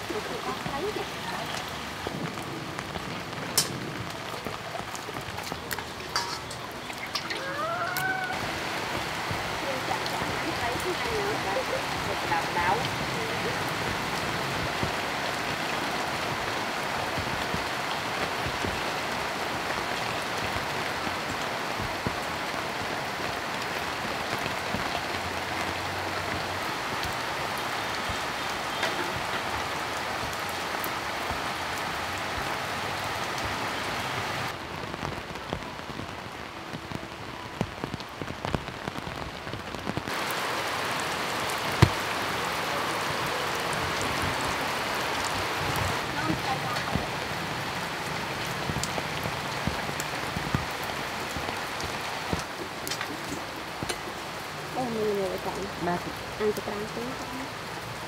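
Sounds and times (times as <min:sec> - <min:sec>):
heavy rain falling: 0:00.0 - 0:58.0
single raindrops ticking: 0:00.3 - 0:15.8, 0:43.6 - 0:57.9.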